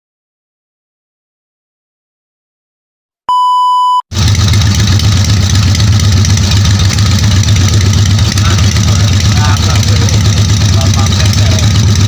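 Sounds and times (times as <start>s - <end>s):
short electronic beep: 3.3s - 4.1s
motorcycle engine running: 4.1s - 12.0s.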